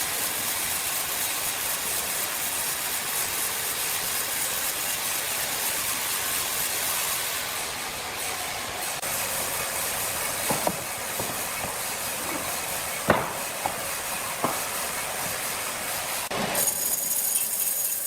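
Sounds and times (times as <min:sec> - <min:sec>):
sawmill machinery hissing: 0:00.0 - 0:18.0
timber knocks: 0:09.4 - 0:15.4.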